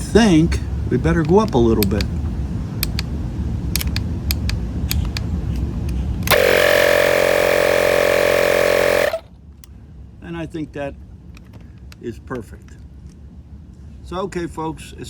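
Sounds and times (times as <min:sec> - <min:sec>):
inflator compressor running: 0:06.3 - 0:09.2.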